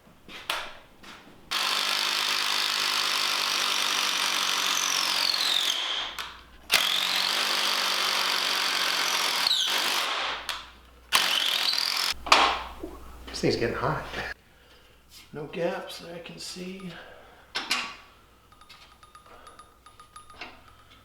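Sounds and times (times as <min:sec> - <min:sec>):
electric power tool whining: 0:01.5 - 0:10.2, 0:11.1 - 0:12.2.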